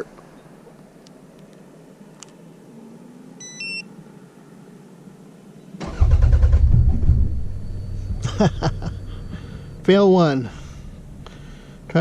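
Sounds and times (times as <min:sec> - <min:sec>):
car starter cranking engine: 0:05.8 - 0:09.8.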